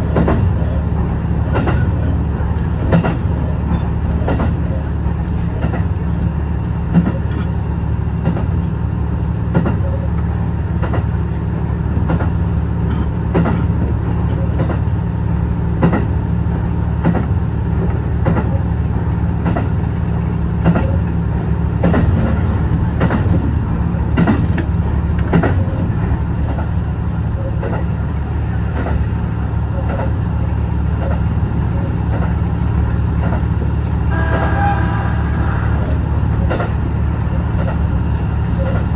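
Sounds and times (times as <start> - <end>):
wheels clicking over rail joints: 0.0 - 6.2, 17.0 - 38.9
train engine low drone: 0.0 - 38.9.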